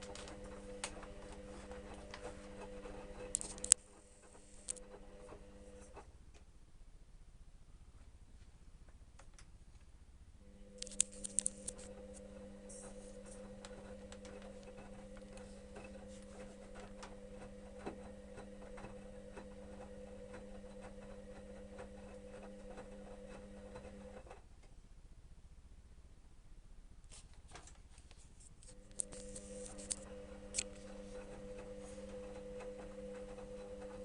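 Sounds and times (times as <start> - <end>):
washing machine motor humming: 0.0 - 6.0, 10.4 - 24.3, 28.7 - 34.0.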